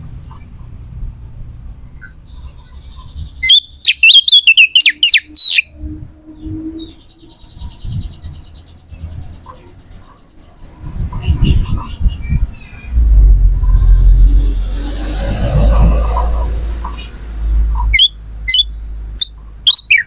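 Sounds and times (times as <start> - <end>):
bird chirping: 1.5 - 10.4, 17.8 - 20.0.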